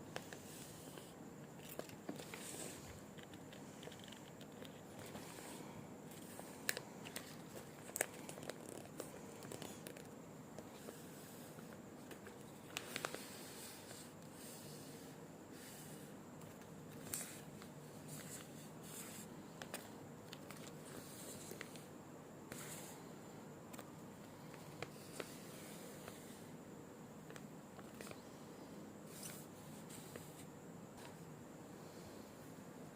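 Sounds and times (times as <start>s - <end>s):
packaging crinkling and rustling: 6.2s - 10.2s.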